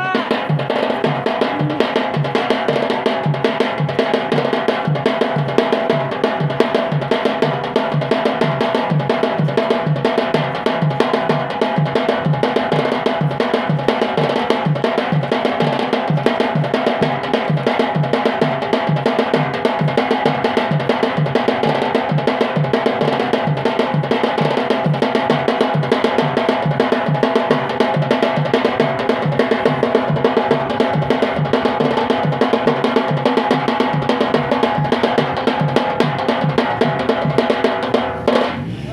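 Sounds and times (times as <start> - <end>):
drums beating a steady rhythm: 0.0 - 38.7.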